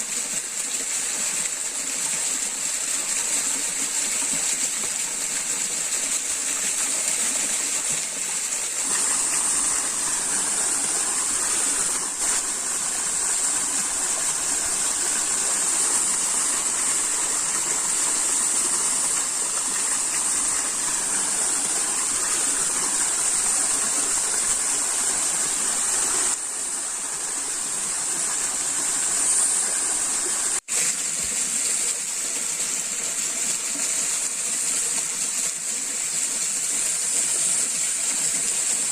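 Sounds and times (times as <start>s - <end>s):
stream water rushing: 0.0s - 38.9s
high even hiss: 6.7s - 31.0s.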